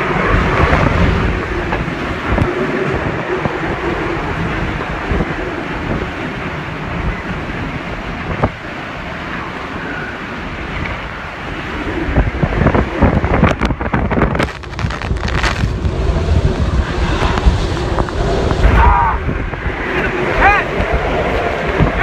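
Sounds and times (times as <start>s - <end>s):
strong wind blasting microphone: 0.0s - 22.0s.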